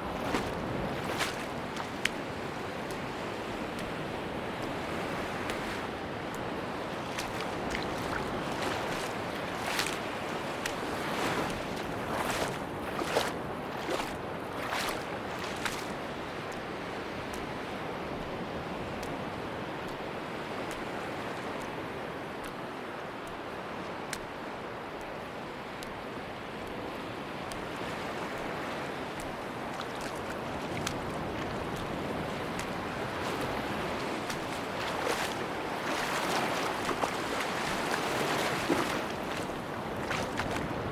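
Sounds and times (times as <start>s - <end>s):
sea surf washing on beach: 0.0s - 40.9s.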